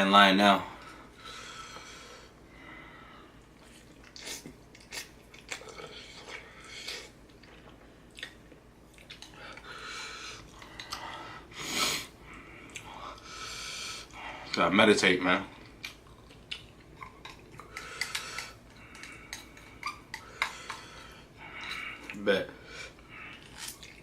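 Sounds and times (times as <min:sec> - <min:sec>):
person chewing noodles: 0:03.5 - 0:11.4, 0:12.3 - 0:14.2, 0:15.5 - 0:24.0.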